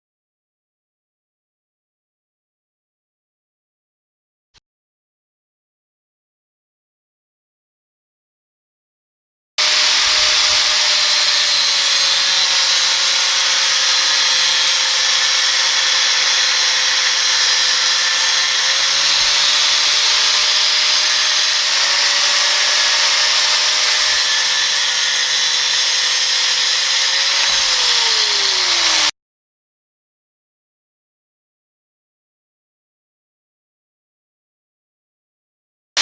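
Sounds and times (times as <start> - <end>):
angle grinder cutting metal: 9.6 - 29.1.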